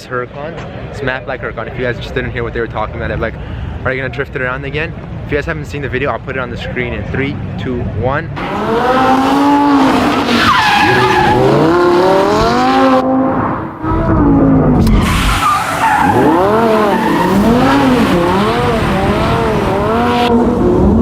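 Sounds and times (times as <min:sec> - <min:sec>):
car engine revving: 0:08.4 - 0:21.0
tyres squealing: 0:09.8 - 0:12.8, 0:15.0 - 0:19.0.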